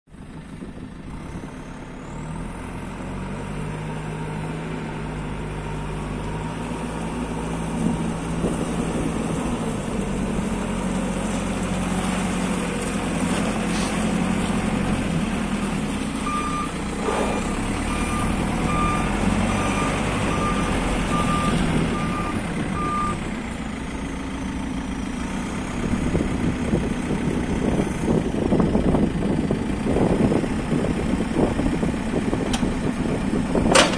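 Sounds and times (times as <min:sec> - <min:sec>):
diesel engine running: 0:00.1 - 0:33.9
reversing alarm beeps: 0:16.3 - 0:23.2.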